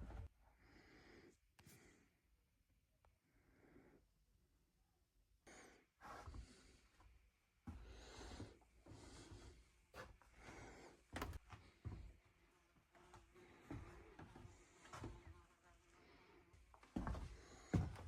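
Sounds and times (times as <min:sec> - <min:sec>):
faint breaths: 0:05.4 - 0:18.0.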